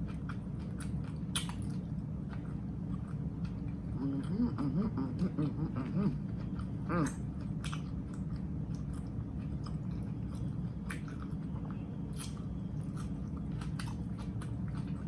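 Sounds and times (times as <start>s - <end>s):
crunchy clicks of bread: 0.0s - 3.6s
person chewing food: 0.0s - 15.0s.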